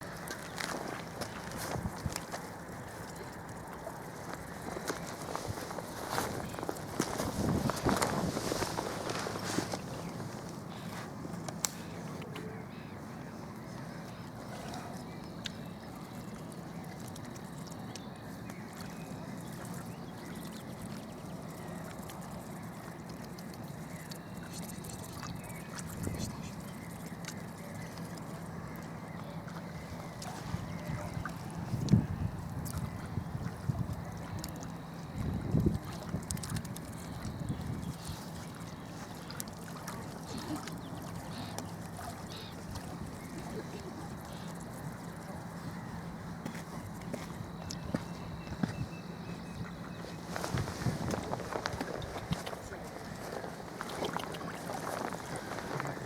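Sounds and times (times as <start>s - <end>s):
low wind rumble: 0.0s - 11.5s, 28.5s - 38.8s, 40.8s - 56.0s
outdoor background noise: 0.0s - 56.0s
waterbird calls: 0.0s - 56.0s.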